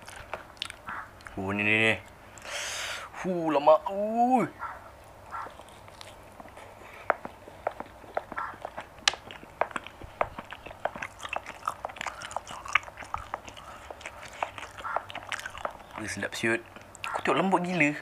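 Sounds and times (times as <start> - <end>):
person chewing meat: 0.0 - 1.4, 4.6 - 17.3.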